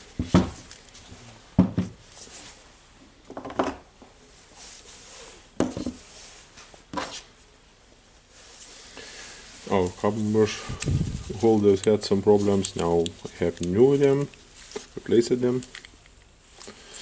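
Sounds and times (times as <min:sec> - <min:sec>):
tool parts knocking on workbench: 0:01.6 - 0:02.0.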